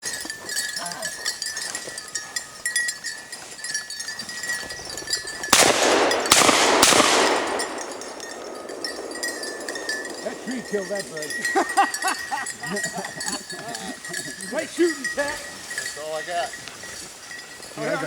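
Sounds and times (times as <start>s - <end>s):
shotgun shots with echo: 5.5s - 10.2s.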